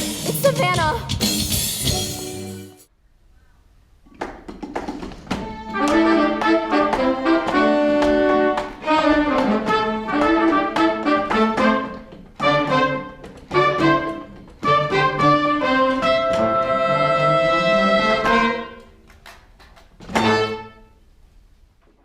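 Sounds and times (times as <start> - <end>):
orchestra with brass and strings: 5.5 - 18.9.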